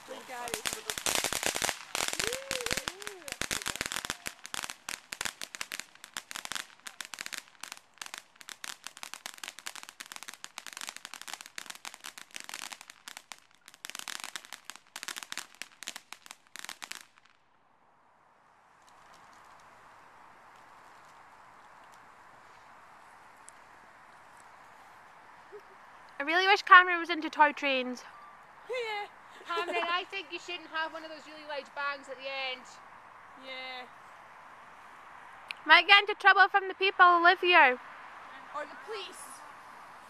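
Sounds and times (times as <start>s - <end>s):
fireworks crackling: 0.0s - 17.6s, 18.4s - 40.0s.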